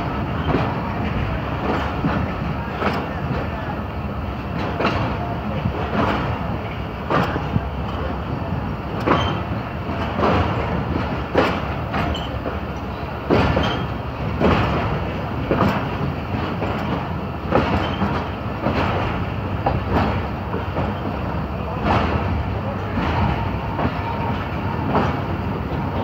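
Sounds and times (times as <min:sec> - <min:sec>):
train wheels rumbling on track: 0:00.0 - 0:26.0
wheels clunking over rail joints: 0:00.4 - 0:26.0.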